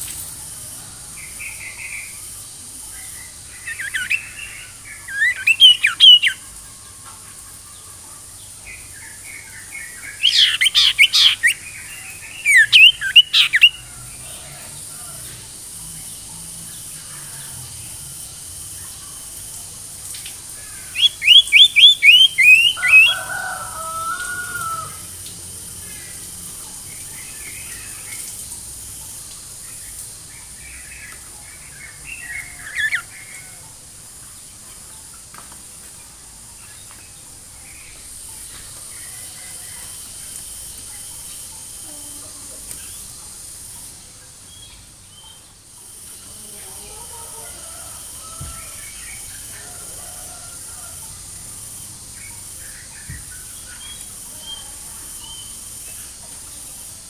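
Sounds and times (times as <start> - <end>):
faint high hiss: 0.0 - 57.0
bird chattering notes: 3.6 - 6.4, 10.2 - 13.8, 21.0 - 23.1
bird singing whistles: 21.0 - 23.1.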